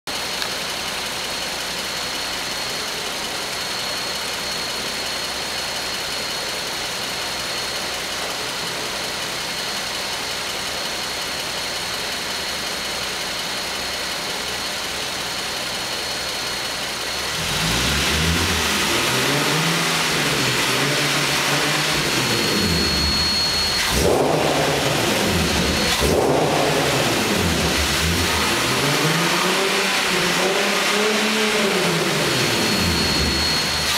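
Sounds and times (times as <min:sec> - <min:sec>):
car engine idling with whine: 0:00.1 - 0:33.9
car engine revving: 0:17.0 - 0:33.9.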